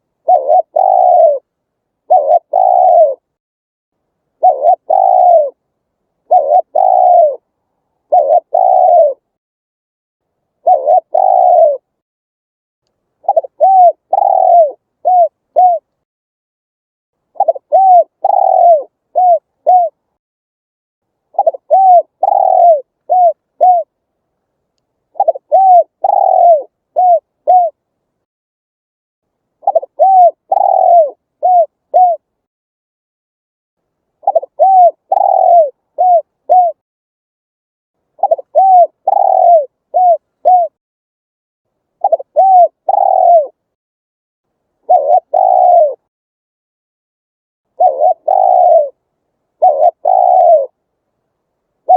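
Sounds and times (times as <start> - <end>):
dove cooing: 0.0 - 3.3, 4.4 - 5.6, 6.2 - 9.3, 10.6 - 11.9, 13.2 - 15.9, 17.4 - 20.0, 21.3 - 24.0, 25.1 - 27.8, 29.6 - 32.3, 34.2 - 36.8, 38.2 - 40.8, 42.0 - 43.6, 44.8 - 46.1, 47.7 - 49.0, 49.6 - 50.8.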